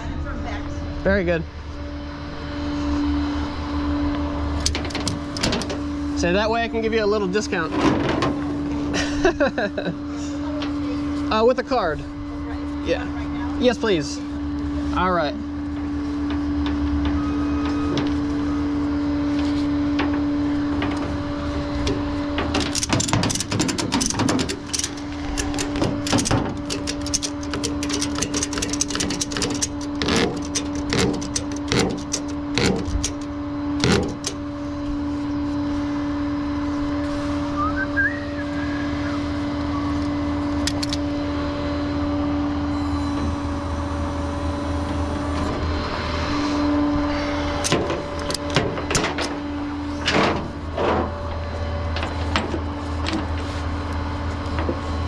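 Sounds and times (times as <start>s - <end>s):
sharp clicks and knocks: 4.6s - 5.8s, 21.8s - 34.4s, 40.6s - 41.0s, 47.6s - 49.4s
tow truck idling: 15.6s - 35.6s.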